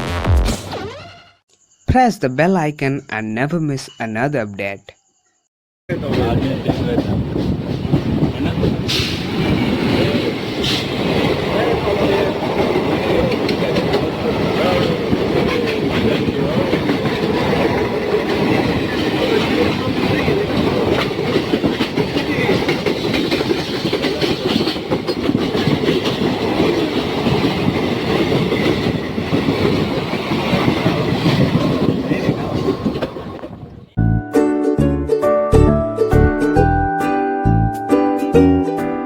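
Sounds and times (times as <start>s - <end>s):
train wheels clattering over rail joints: 5.9s - 33.8s.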